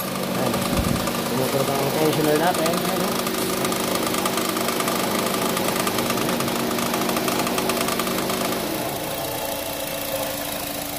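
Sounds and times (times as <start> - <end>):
fast ticking rattle: 0.0 - 8.7
car engine idling: 0.0 - 10.9.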